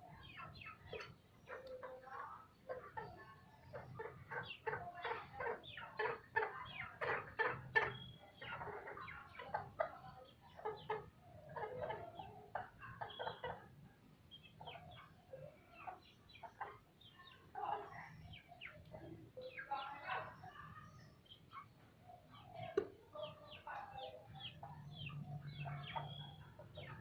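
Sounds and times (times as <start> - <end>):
chickens clucking: 0.0 - 27.0.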